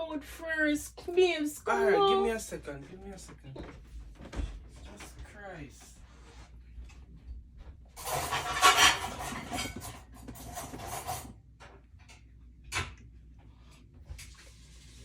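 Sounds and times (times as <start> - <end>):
household objects clattering: 8.0 - 11.4.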